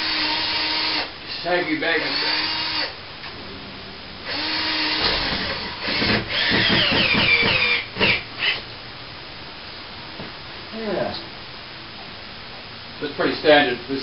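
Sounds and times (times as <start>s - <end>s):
power drill driving screws: 0.0s - 1.1s, 2.0s - 2.9s, 4.3s - 8.6s.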